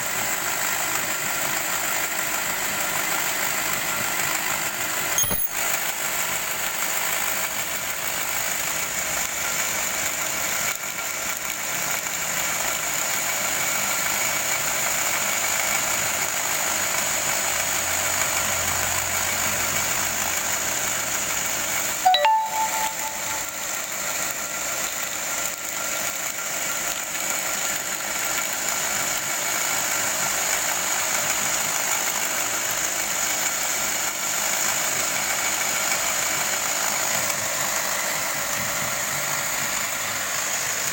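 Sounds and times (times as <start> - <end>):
sharp click: 5.2 - 5.6.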